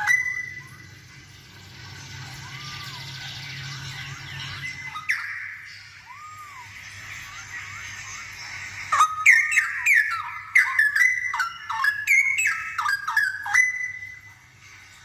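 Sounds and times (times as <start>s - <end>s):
bird singing whistled notes: 4.4s - 6.8s, 8.9s - 14.3s.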